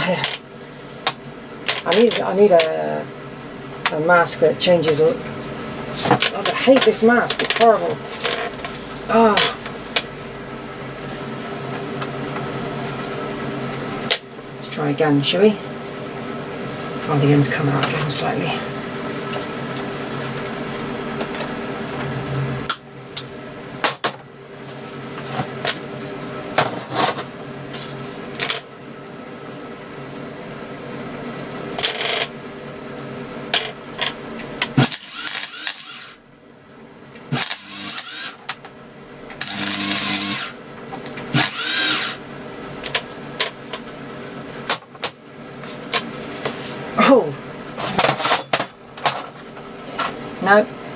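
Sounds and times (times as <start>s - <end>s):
welder arc crackling: 0.0s - 2.9s, 33.5s - 36.2s, 37.2s - 38.6s, 39.2s - 42.2s
welder electrical hum: 0.0s - 50.9s.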